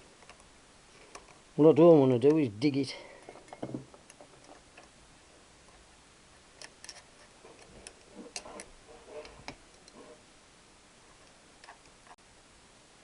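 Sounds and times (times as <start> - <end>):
hand tool clicks and scrapes: 6.6 - 10.2.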